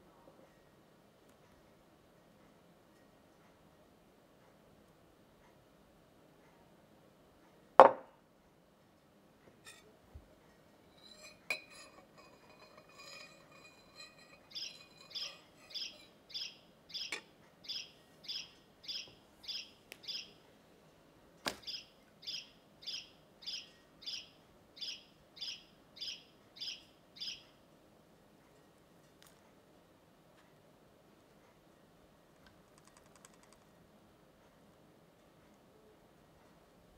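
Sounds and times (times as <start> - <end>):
bird chirping: 11.0 - 20.4, 21.6 - 27.6.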